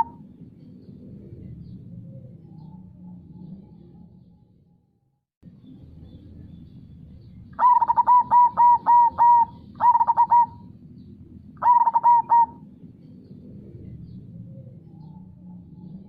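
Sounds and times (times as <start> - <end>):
dove cooing: 0.0 - 0.3, 7.6 - 10.8, 11.6 - 12.8
low steady background rush: 0.0 - 4.7, 5.4 - 16.0.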